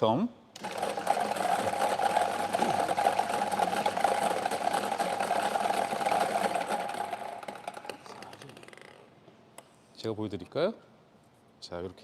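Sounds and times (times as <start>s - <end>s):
lottery balls rattling in machine: 0.6s - 9.0s.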